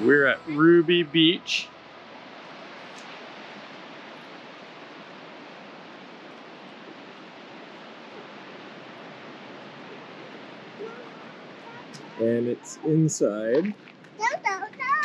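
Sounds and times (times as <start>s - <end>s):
surf breaking on beach: 0.0s - 15.0s.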